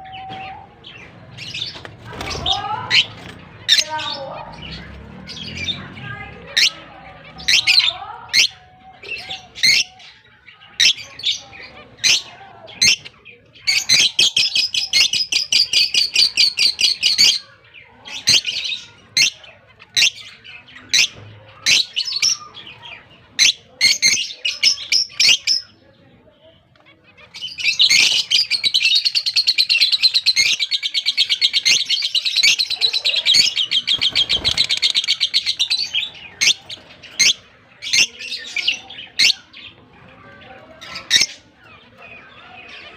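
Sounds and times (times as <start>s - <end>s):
lovebirds chirping: 0.0s - 42.9s
lovebirds rapid chattering: 0.0s - 42.9s.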